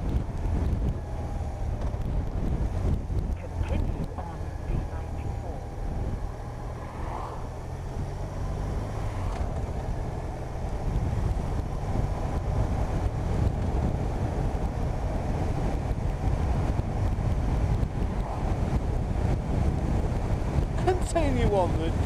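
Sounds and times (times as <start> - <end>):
motorcycle engine hum: 0.0 - 22.0
wind buffeting microphone: 0.0 - 22.0.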